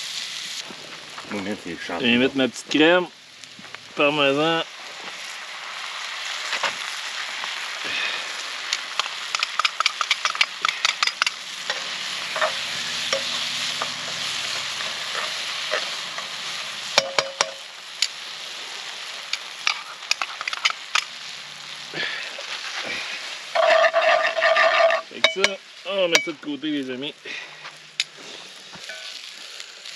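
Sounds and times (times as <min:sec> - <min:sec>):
sauce sizzling in a frying pan: 0:00.0 - 0:29.9
utensil clicking and scraping pan: 0:08.7 - 0:16.3, 0:19.6 - 0:21.1, 0:23.6 - 0:25.6.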